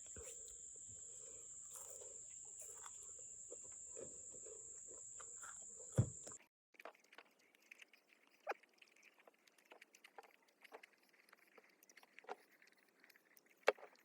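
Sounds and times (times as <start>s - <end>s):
cricket trilling: 0.0s - 6.4s.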